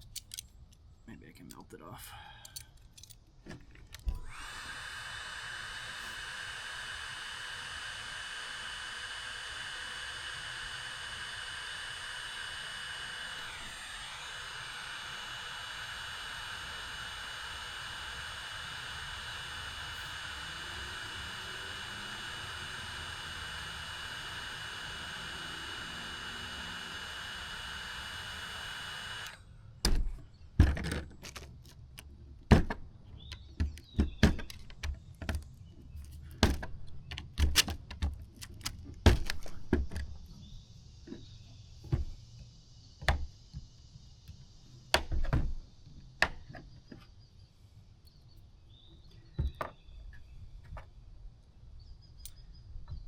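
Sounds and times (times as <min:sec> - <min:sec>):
small tools clicking on plastic: 0:00.0 - 0:00.8, 0:02.4 - 0:04.2, 0:30.6 - 0:32.2, 0:33.2 - 0:40.1
heat gun blowing with whine: 0:03.8 - 0:29.6.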